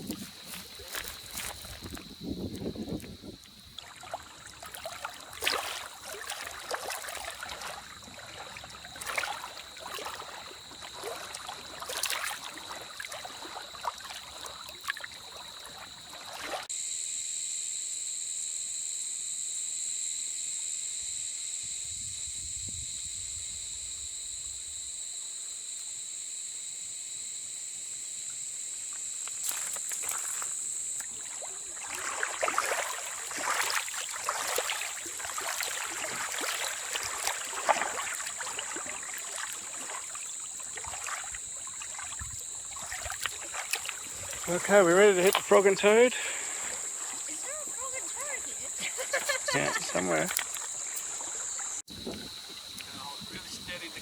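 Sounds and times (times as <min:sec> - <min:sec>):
light water sounds: 0:00.0 - 0:16.7, 0:28.7 - 0:54.0
steady high-pitched hiss: 0:00.0 - 0:54.0.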